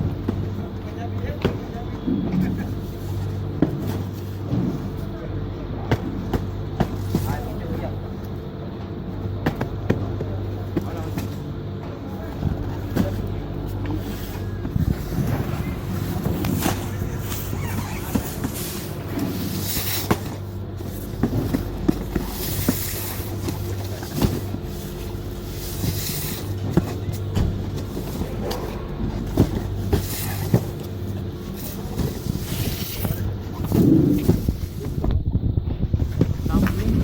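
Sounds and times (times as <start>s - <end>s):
low mechanical hum: 0.0s - 37.0s
cardboard boxes thumping down: 25.8s - 31.0s.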